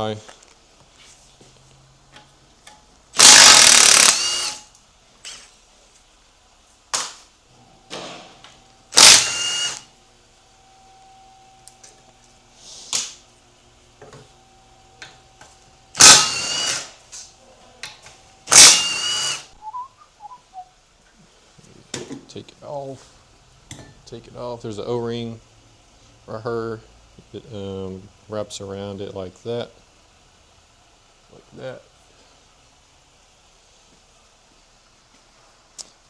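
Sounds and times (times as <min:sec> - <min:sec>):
power tool whining: 0:03.2 - 0:04.7, 0:08.9 - 0:09.9, 0:15.9 - 0:17.0, 0:18.4 - 0:19.5.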